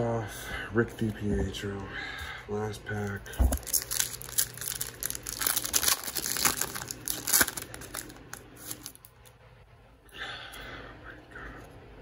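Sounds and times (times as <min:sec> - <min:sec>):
foil wrapper crinkling and tearing: 0:03.0 - 0:09.1.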